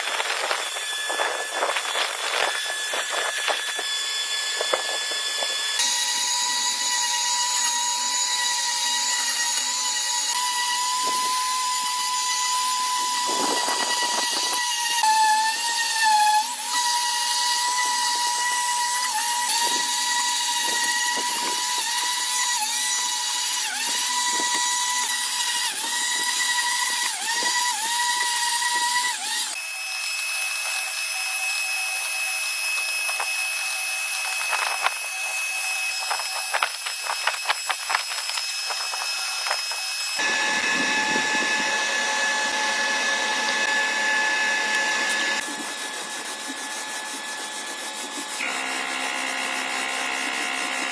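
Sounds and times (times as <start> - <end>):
power tool whining: 0.0 - 50.9.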